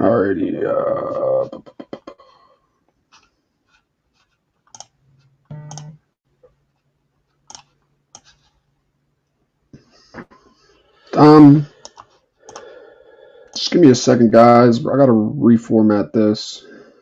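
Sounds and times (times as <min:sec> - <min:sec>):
keyboard and mouse clicks: 0:04.6 - 0:05.0, 0:05.6 - 0:06.0, 0:07.4 - 0:08.5, 0:11.8 - 0:12.7.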